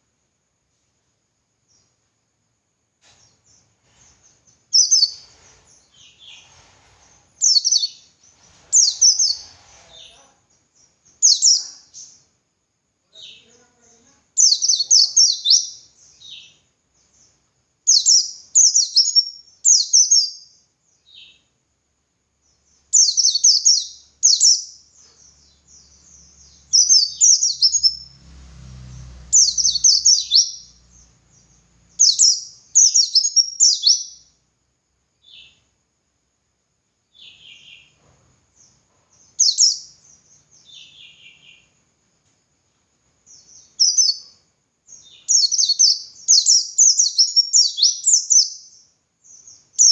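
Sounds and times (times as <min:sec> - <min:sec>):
bird chirping rapidly: 0:03.5 - 0:06.5, 0:07.3 - 0:10.2, 0:10.8 - 0:12.2, 0:14.4 - 0:20.5, 0:22.7 - 0:28.2, 0:29.2 - 0:34.3, 0:39.2 - 0:41.7, 0:43.3 - 0:49.9.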